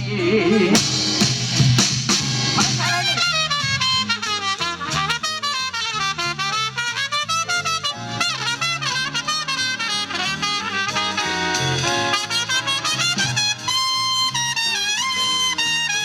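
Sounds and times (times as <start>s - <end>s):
big band playing: 0.0s - 16.0s.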